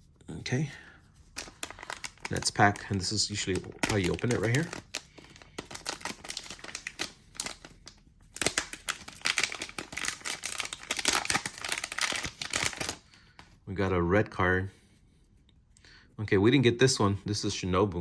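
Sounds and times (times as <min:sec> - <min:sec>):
wrapper tearing and crinkling: 0:01.3 - 0:13.1.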